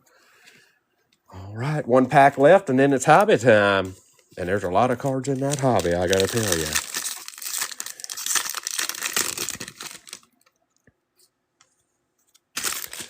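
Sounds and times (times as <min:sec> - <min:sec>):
foil wrapper tearing and crinkling: 0:04.9 - 0:10.3, 0:12.5 - 0:13.0.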